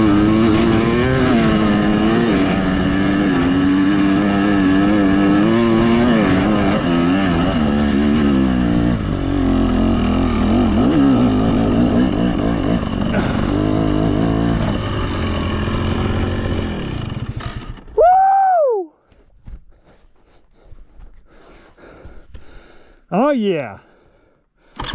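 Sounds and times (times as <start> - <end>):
dirt bike engine revving: 0.0 - 18.0
person whooping: 18.0 - 19.0.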